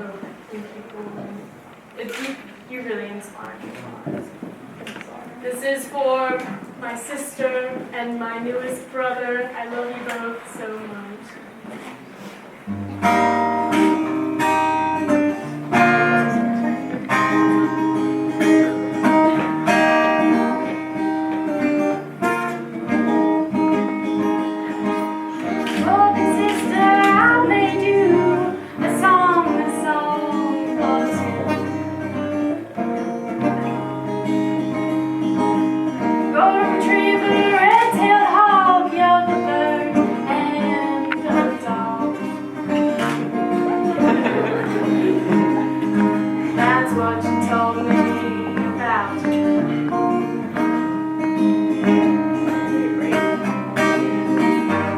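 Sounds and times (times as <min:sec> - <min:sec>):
strummed acoustic guitar: 0:11.7 - 0:54.9.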